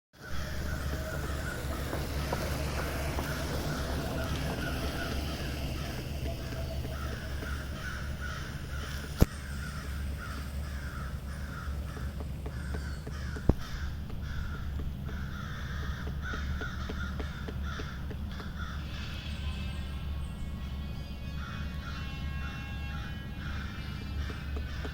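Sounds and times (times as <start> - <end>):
crows cawing: 0.2 - 19.3, 21.2 - 24.9
sharp knocks: 11.4 - 18.6.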